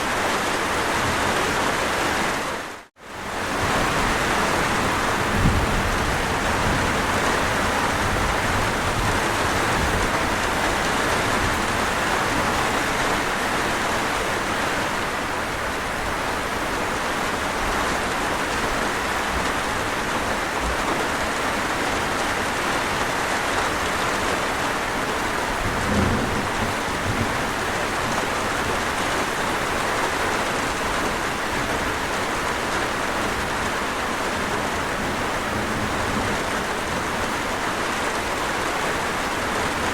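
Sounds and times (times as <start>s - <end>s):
steady rain falling: 0.0s - 39.9s
thunder rumbles: 3.4s - 13.5s, 25.2s - 32.1s.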